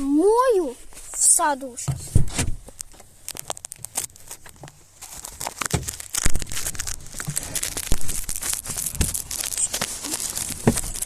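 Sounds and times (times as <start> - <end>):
plastic bottle crinkling: 2.6 - 11.0.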